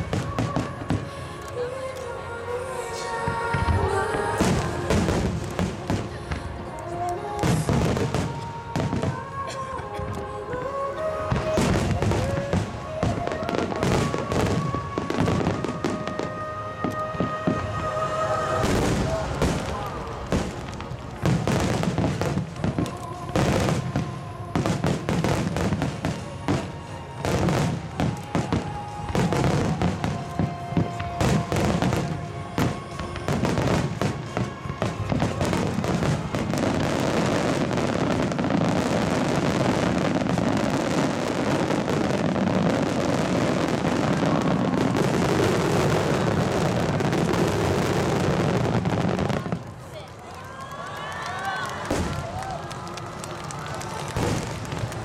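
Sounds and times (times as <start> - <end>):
fireworks crackling: 0.0 - 55.0
music playing: 0.0 - 55.0
fireworks booming: 3.2 - 6.6, 10.6 - 49.7, 51.8 - 52.5.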